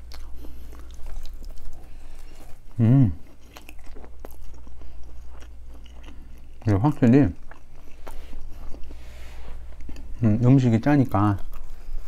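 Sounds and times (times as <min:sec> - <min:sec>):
chewing pizza crust crunching: 0:00.0 - 0:12.0
person humming mm: 0:02.8 - 0:03.2.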